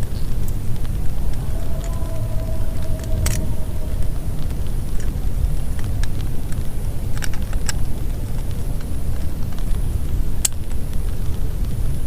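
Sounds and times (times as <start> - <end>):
heavy rain on a tarp: 0.0 - 12.0.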